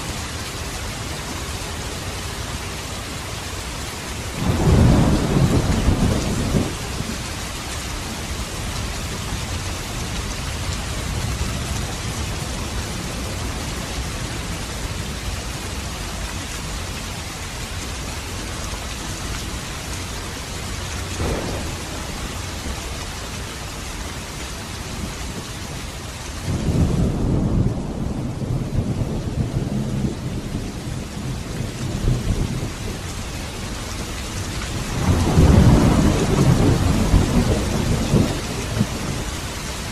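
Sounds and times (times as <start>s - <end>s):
heavy rain: 0.0s - 39.9s
thunder rumbling: 4.4s - 7.5s, 21.2s - 22.8s, 26.4s - 34.1s, 34.7s - 39.9s.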